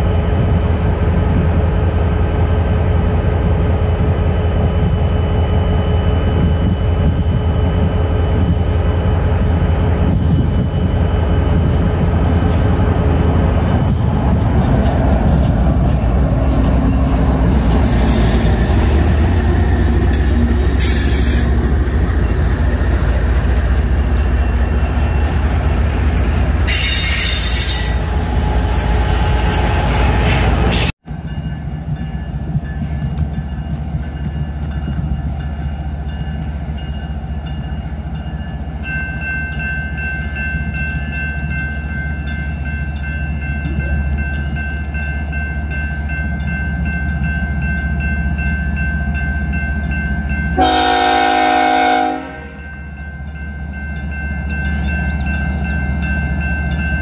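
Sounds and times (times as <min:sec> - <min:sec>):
freight train rumbling past: 0:00.0 - 0:57.0
high wheel squeal: 0:26.6 - 0:30.9.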